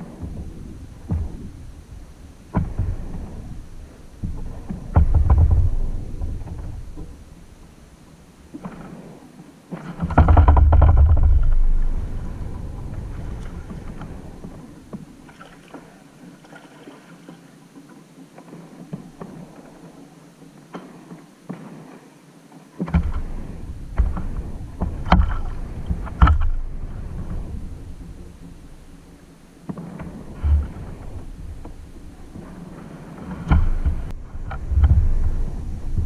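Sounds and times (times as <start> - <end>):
paddle knocks and water splashes: 0.0 - 36.0
heavy low thumps: 0.2 - 7.3, 33.5 - 36.0.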